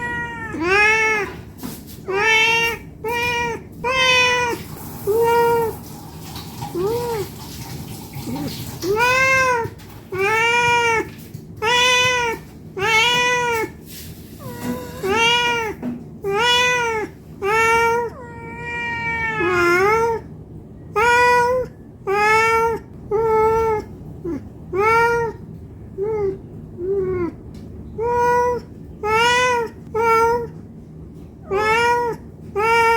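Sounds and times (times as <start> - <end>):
cat meowing: 0.0 - 5.8, 6.6 - 7.4, 8.2 - 20.3, 20.9 - 25.4, 26.0 - 27.4, 28.0 - 30.6, 31.4 - 32.9.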